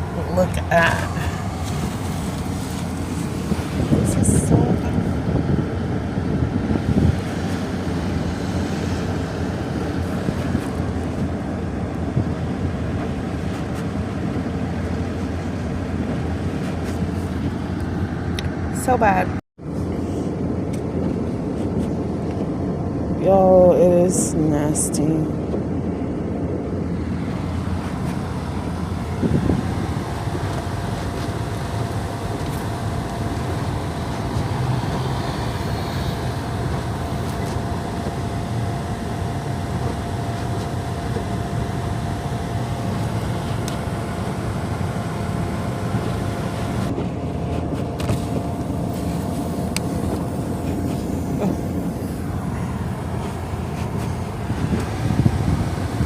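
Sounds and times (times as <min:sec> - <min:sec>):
vehicle low rumble: 0:00.0 - 0:56.0
thin steady hum: 0:17.2 - 0:56.0.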